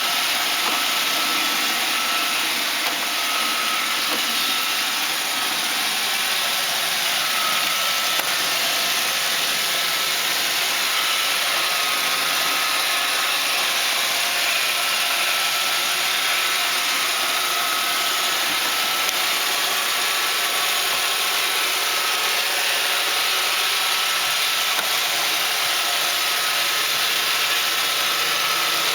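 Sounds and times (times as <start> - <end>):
robot vacuums whirring: 0.0 - 28.9.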